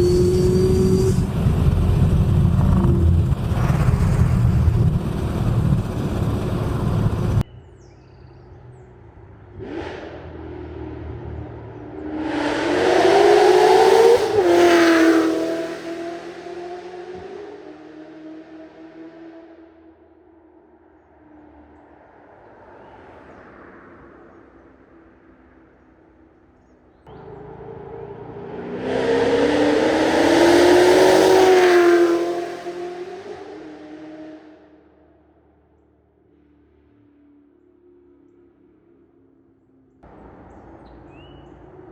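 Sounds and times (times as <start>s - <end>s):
car engine exhaust rumble: 0.0s - 7.5s, 40.0s - 41.9s.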